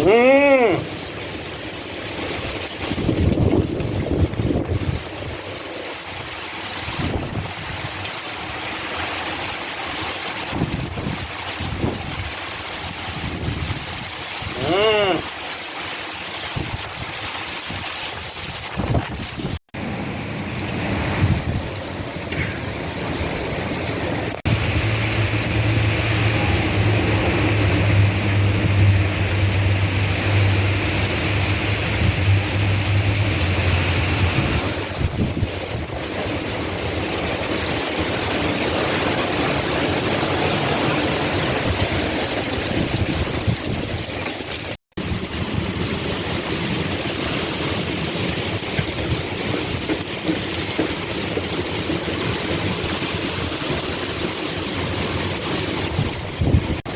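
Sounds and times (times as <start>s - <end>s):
strong wind buffeting microphone: 2.3s - 5.6s, 6.2s - 8.0s, 10.4s - 14.6s, 16.4s - 56.9s
low steady hum: 24.5s - 34.5s.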